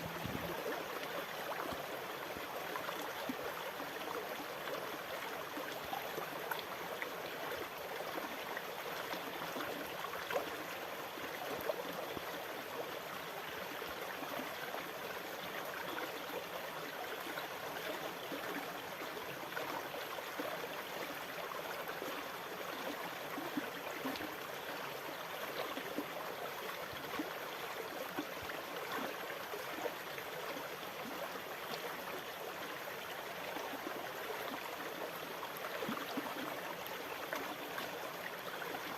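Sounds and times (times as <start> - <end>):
running water trickling: 0.0 - 1.8.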